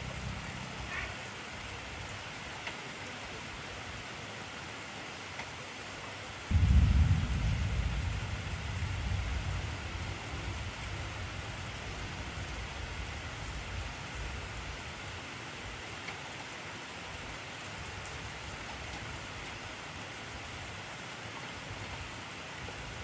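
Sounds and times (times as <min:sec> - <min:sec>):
heavy rain hissing: 0:00.0 - 0:23.0
thunder rumbling: 0:06.5 - 0:14.7.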